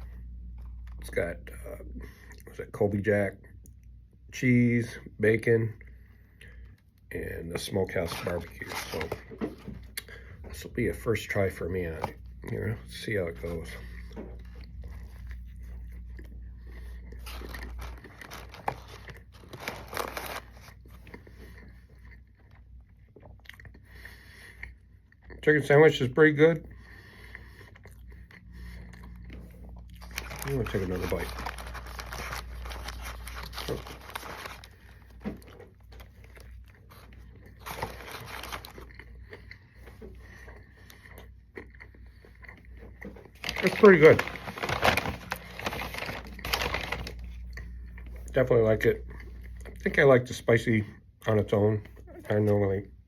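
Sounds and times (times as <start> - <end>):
steady low hum: 0.0 - 53.0
person crunching crispy food: 12.4 - 23.8, 27.3 - 49.8.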